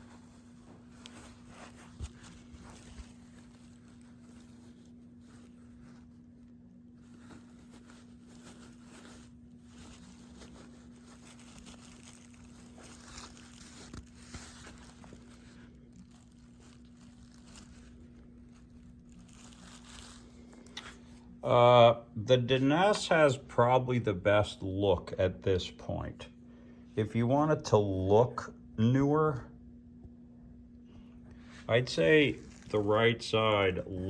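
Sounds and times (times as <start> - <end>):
faint rustling: 0.0 - 21.6, 31.0 - 34.0.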